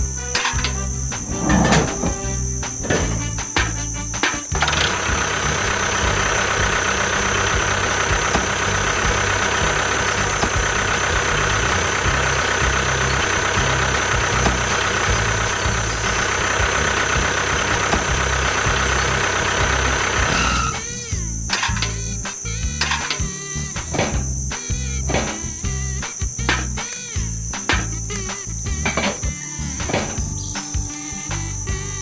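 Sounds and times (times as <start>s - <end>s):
high whine: 0.0s - 32.0s
small tractor engine running: 0.0s - 32.0s.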